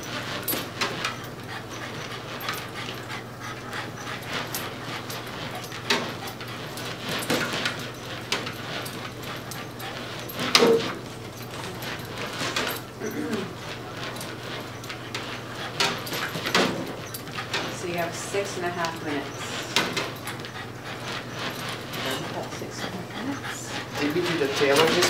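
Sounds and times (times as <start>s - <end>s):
dog panting: 0.0s - 25.0s
dog whimpering: 7.9s - 16.4s, 18.0s - 25.0s.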